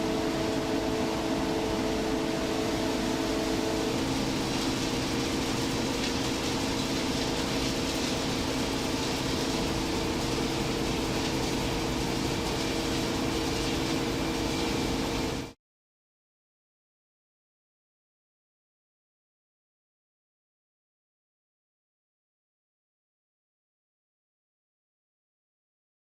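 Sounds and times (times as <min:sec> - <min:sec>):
machinery hiss and droning hum: 0:00.0 - 0:15.6.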